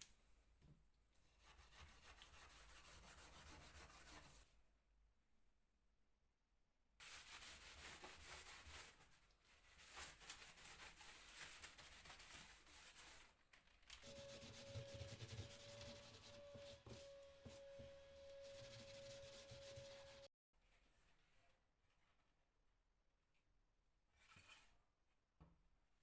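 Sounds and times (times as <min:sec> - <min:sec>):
sanding wood: 0:14.1 - 0:20.3.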